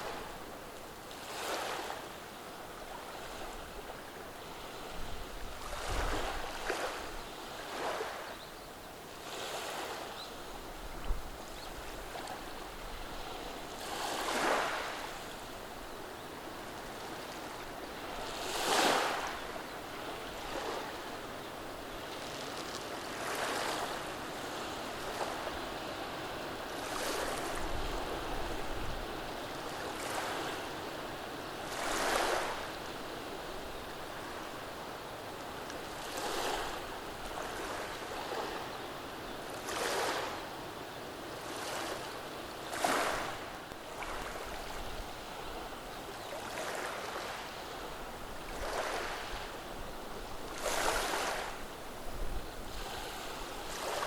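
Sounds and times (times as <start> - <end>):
sea waves washing over cobblestones: 10.8 - 35.0, 41.4 - 54.0.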